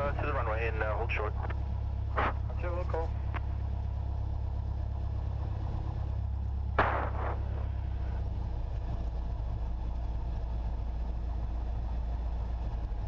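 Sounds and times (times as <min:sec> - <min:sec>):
aircraft engine humming: 0:00.0 - 0:13.0
burst of crackling noise: 0:06.8 - 0:07.8.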